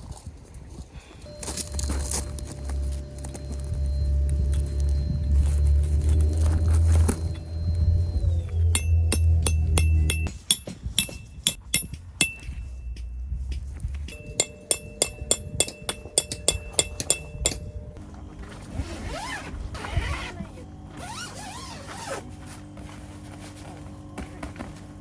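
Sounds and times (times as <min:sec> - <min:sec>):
ticking plucked notes: 0:01.3 - 0:18.1
held tones with gliding sounds: 0:01.3 - 0:21.8.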